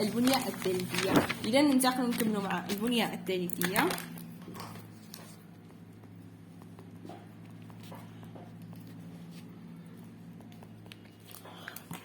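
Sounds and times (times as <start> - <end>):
steady low hum: 0.0 - 12.0
faint clicks and taps: 3.5 - 12.0.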